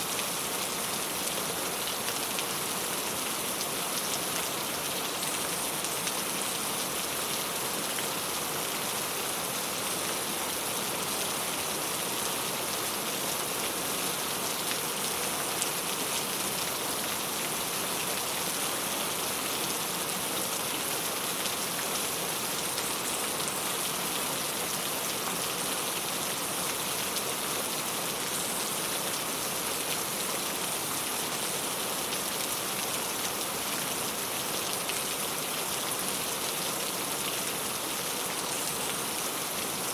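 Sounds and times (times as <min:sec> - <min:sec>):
rain on a tile roof: 0:00.0 - 0:39.9.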